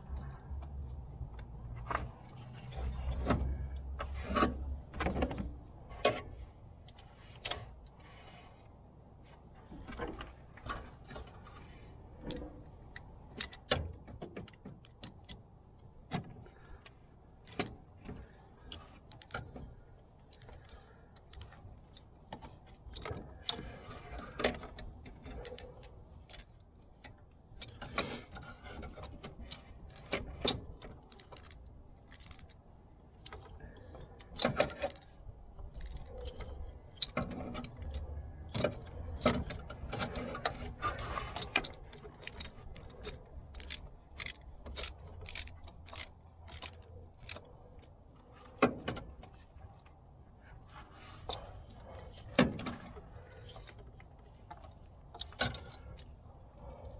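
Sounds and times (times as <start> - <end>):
metallic clicks of hand tools: 17.4 - 17.8, 18.7 - 19.5, 20.2 - 21.6, 25.3 - 26.6, 29.4 - 32.6, 34.2 - 40.6, 41.4 - 47.5.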